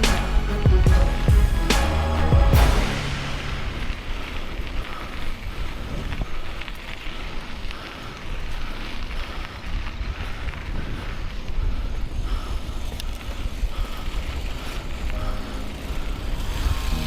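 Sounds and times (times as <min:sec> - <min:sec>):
bicycle rolling noise: 0:03.3 - 0:17.0
wind buffeting microphone: 0:03.5 - 0:17.0.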